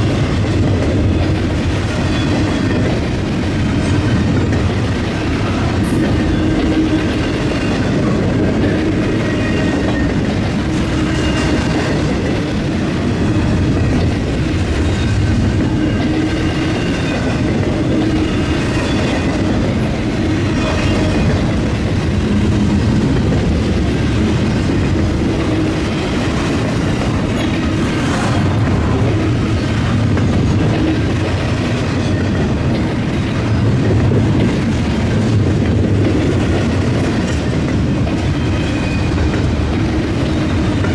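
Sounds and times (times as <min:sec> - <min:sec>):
train wheels clattering: 0:00.0 - 0:40.9.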